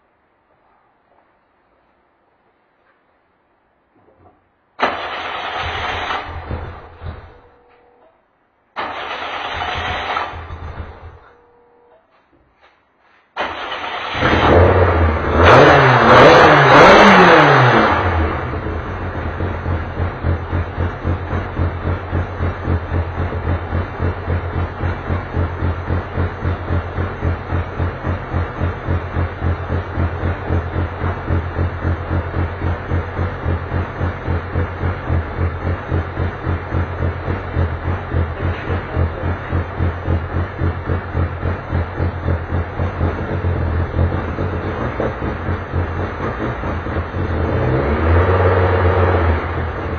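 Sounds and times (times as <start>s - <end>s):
race car engine: 4.8s - 7.4s, 8.8s - 11.4s, 13.4s - 49.9s
engine revving and idling: 13.5s - 49.9s.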